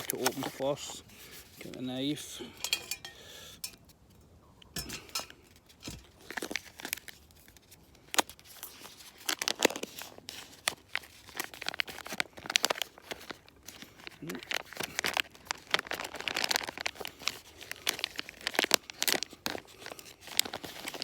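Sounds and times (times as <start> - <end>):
plastic pouch crinkling and tearing: 0.0 - 1.9, 5.5 - 21.0.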